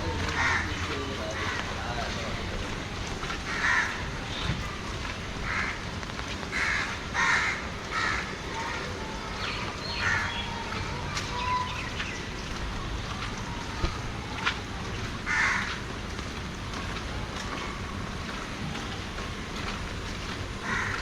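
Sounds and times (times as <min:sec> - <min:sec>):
crows cawing: 0:00.2 - 0:02.1, 0:03.5 - 0:04.4, 0:05.4 - 0:05.9, 0:06.5 - 0:08.8, 0:09.9 - 0:10.4, 0:15.3 - 0:15.8, 0:20.6 - 0:21.0.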